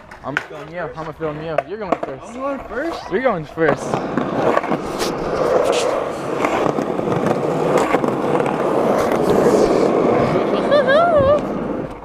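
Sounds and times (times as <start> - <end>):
skateboard clacks and knocks: 0.0 - 3.0, 3.6 - 10.1
skateboard wheels rolling on pavement: 0.0 - 12.0.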